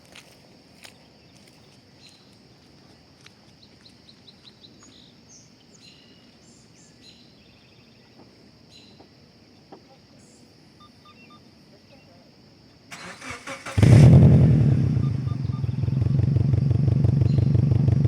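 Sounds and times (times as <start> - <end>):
bird chirps: 3.6 - 9.1, 10.2 - 12.2, 15.0 - 16.1, 17.0 - 17.7
steady high-pitched hum: 14.2 - 18.0.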